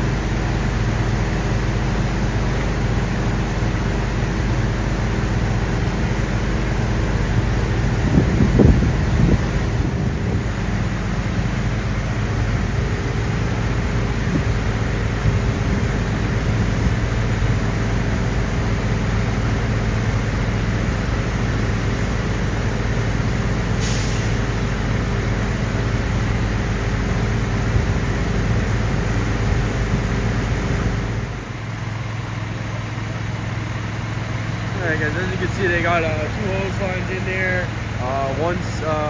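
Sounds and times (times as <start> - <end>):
heavy diesel engine rumbling: 0.0 - 39.0
air brake hiss: 23.8 - 24.5.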